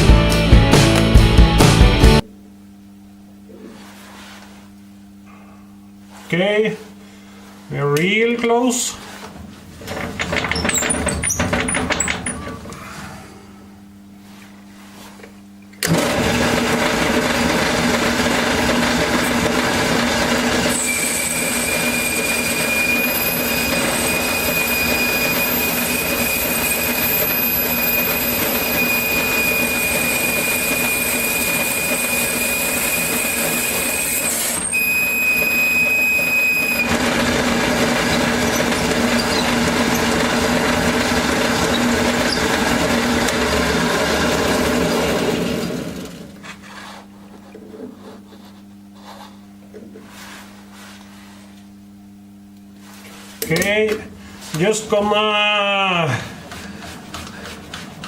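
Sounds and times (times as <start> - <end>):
metalworking machine boring metal: 9.9 - 12.6, 15.8 - 46.2
high steady squeal: 20.6 - 36.9.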